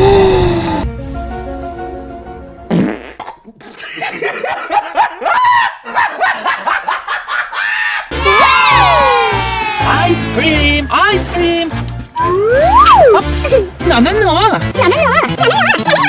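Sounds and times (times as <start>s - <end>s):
comic fart-like noise: 2.7s - 3.4s
soft background music: 8.3s - 16.0s.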